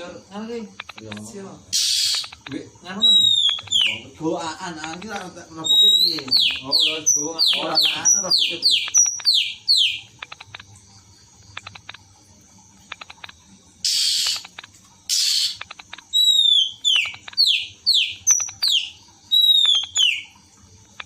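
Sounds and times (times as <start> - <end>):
bird dry clicking notes: 0.7 - 2.6, 3.2 - 10.8, 11.4 - 12.0, 12.8 - 20.2
bird harsh rasping notes: 1.7 - 4.1
bird whistles: 3.0 - 4.0, 16.2 - 20.3.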